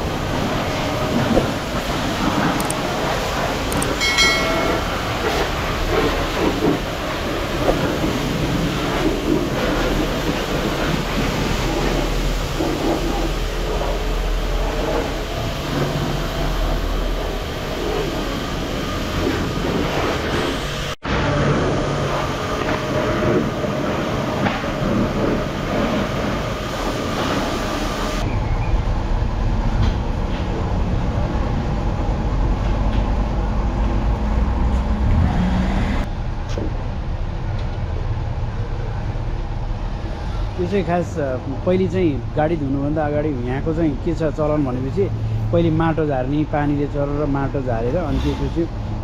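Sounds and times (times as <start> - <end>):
water spraying onto a car: 0.0 - 4.0, 4.9 - 28.2
machine noise: 0.0 - 28.3.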